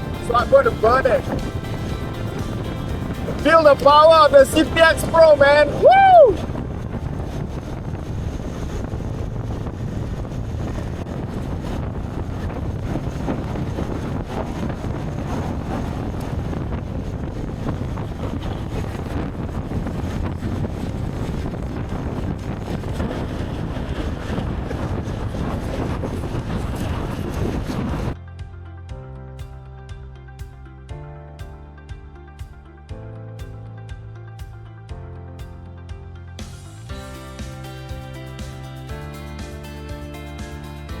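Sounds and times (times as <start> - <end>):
electric motorcycle riding noise: 0.0 - 28.2
wind rushing over microphone: 0.0 - 28.2, 32.9 - 41.0.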